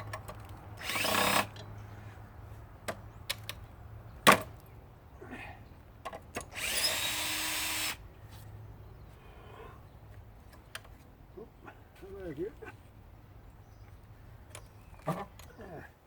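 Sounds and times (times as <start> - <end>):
cordless drill spinning: 0.8 - 1.6, 6.6 - 8.0.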